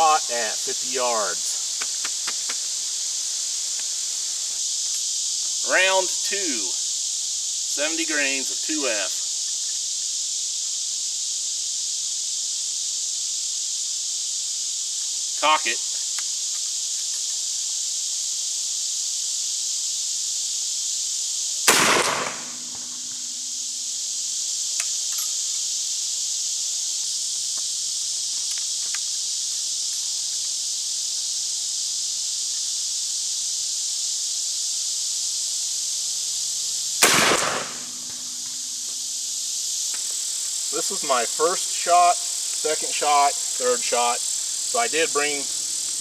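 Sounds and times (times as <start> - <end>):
high insect chorus: 0.0 - 46.0
gunshots: 21.7 - 23.0, 37.0 - 38.3.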